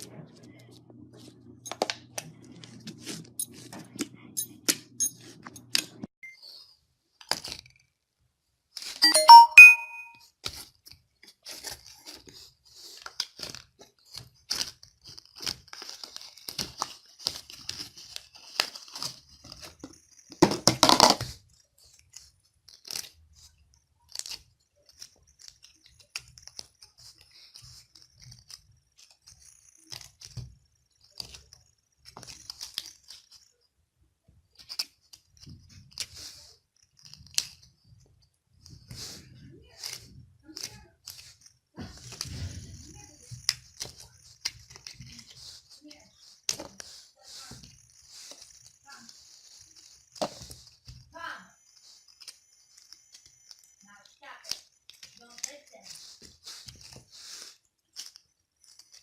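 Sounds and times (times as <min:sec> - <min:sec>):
short bright chime: 0:09.0 - 0:10.2.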